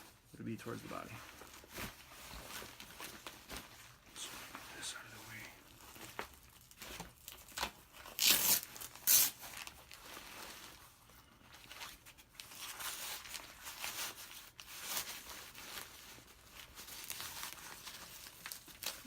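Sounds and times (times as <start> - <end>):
nylon fabric rustling: 0.0 - 6.8
velcro ripping open: 6.6 - 10.0.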